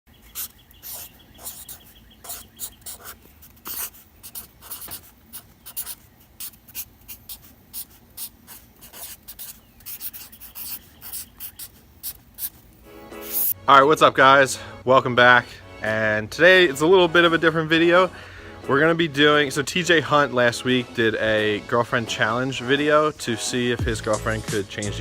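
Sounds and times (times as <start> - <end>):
pen scratching on paper: 0.4 - 12.6, 13.2 - 13.6.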